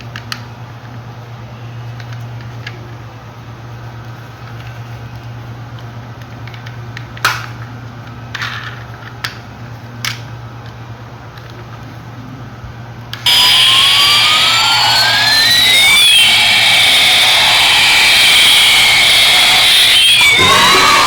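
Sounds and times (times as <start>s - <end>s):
steady low hum: 13.3s - 21.0s.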